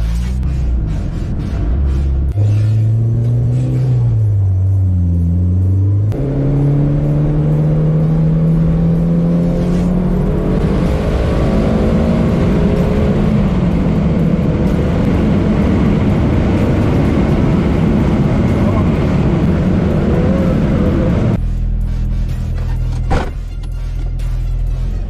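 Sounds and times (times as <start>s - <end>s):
car engine accelerating: 0.0s - 23.2s.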